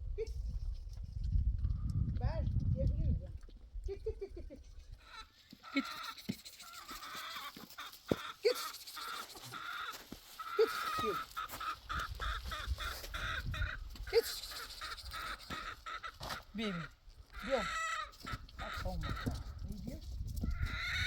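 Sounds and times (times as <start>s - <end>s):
bird chattering: 5.0s - 19.6s.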